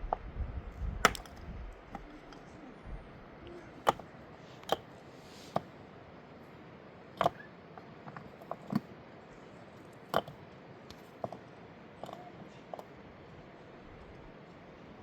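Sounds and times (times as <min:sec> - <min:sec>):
sharp knocks and clicks: 0:01.0 - 0:02.4
faint hiss: 0:03.4 - 0:06.8.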